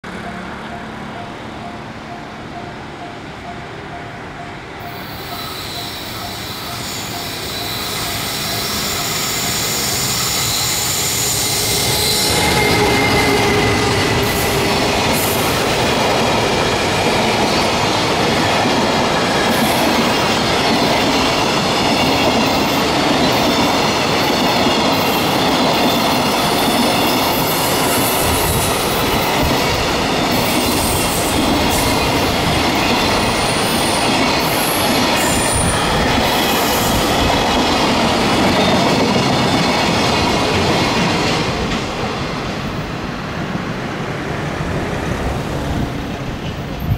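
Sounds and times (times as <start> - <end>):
electric locomotive passing: 0.0 - 46.9
freight train rolling by: 0.0 - 46.9
high wheel squeal: 4.8 - 40.0.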